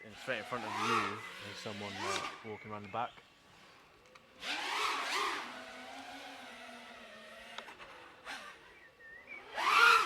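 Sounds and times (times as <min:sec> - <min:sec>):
drone propellers whining: 0:04.6 - 0:10.0.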